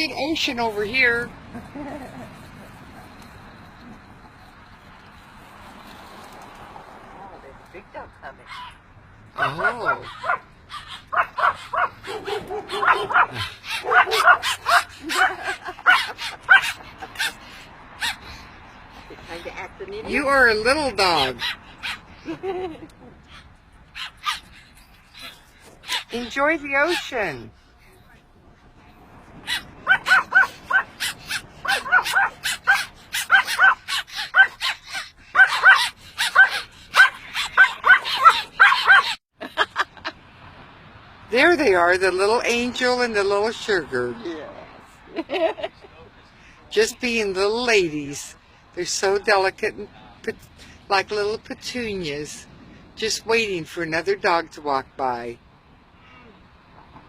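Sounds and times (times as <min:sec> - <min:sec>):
small dogs yapping: 0:08.4 - 0:18.4, 0:21.2 - 0:22.2, 0:23.3 - 0:27.3, 0:29.4 - 0:39.2.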